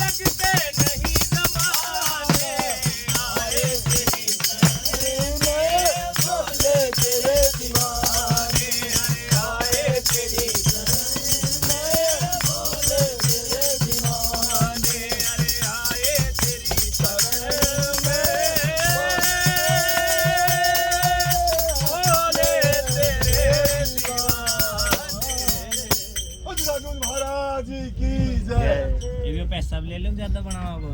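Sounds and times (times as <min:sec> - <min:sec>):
rattling hand percussion: 0:00.0 - 0:27.4
men singing devotional song: 0:00.0 - 0:29.6.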